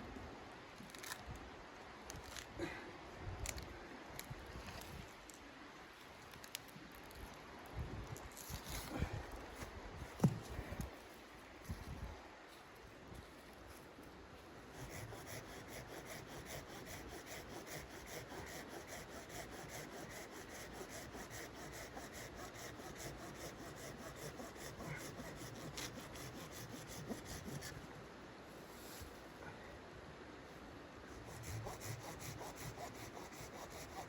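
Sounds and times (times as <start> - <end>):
hand saw cutting wood: 14.8 - 27.8, 31.1 - 34.0.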